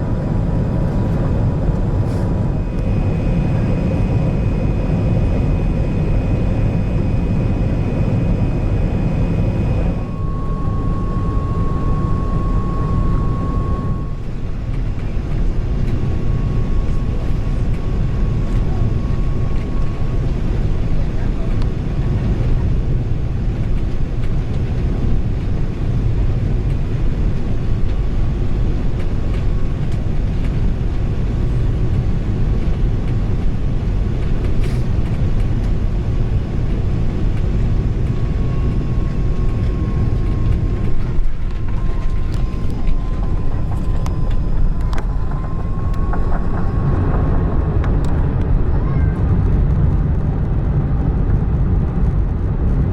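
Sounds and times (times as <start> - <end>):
airplane cabin rumble: 0.0 - 52.9
faint thin whine: 0.8 - 22.3, 34.2 - 48.2.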